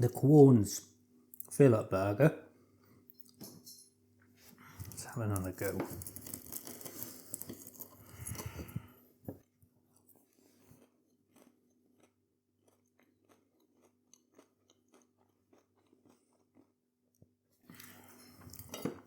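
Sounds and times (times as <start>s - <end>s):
chewing crunchy food: 4.6s - 9.0s, 10.0s - 19.0s.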